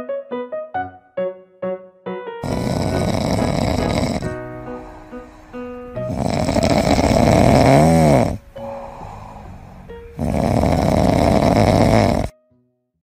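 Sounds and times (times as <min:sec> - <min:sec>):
faint background music: 0:00.0 - 0:12.8
dog snoring: 0:02.4 - 0:12.3.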